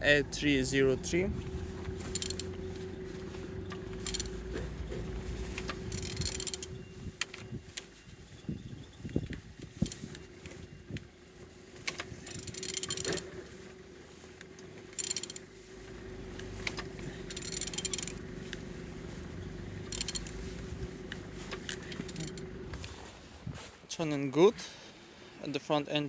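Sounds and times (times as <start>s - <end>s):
ratchet clicking: 2.0s - 2.5s, 4.0s - 4.4s, 5.5s - 7.4s, 9.8s - 10.2s, 11.9s - 13.3s, 14.9s - 15.5s, 16.6s - 18.2s, 19.9s - 20.4s, 21.5s - 22.4s.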